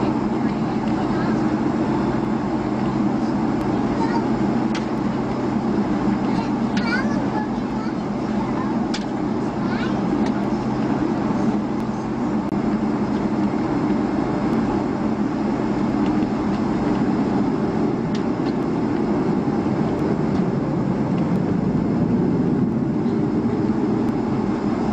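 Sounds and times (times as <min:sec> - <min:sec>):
aircraft cabin engine rumble: 0:00.0 - 0:24.9.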